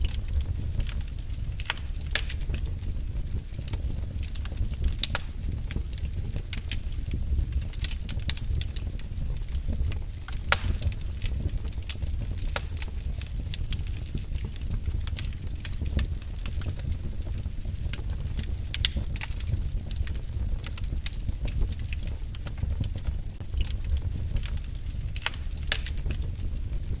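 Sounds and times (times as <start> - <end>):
fire crackling and popping: 0.0 - 27.0
fire rumbling in a fireplace: 0.0 - 27.0.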